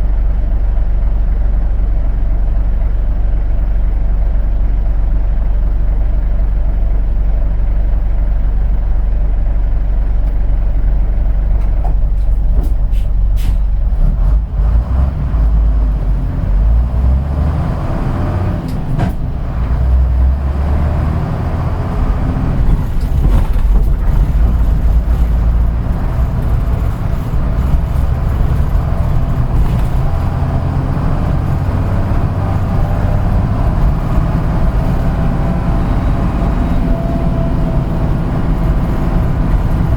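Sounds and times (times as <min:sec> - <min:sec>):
bus diesel engine: 0:00.0 - 0:39.9.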